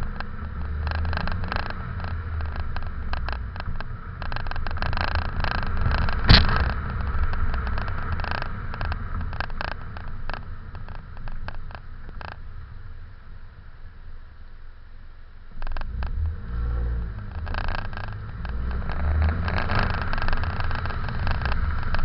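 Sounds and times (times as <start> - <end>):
car engine rumbling: 0.0 - 22.0
sharp knock: 6.2 - 6.9.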